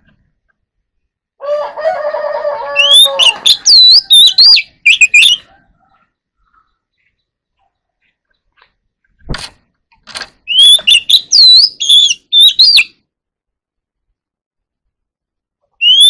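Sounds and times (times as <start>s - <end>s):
bird singing: 2.7s - 9.0s, 10.4s - 13.0s, 15.8s - 16.0s.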